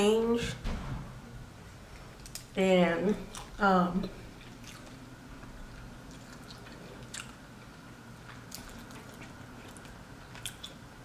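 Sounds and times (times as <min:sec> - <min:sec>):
chewing seafood: 0:03.2 - 0:03.6, 0:04.2 - 0:11.0.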